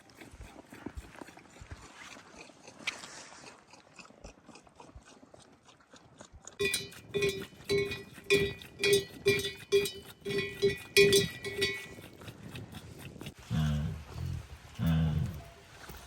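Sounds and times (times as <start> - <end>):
bell clanking: 6.6 - 12.0.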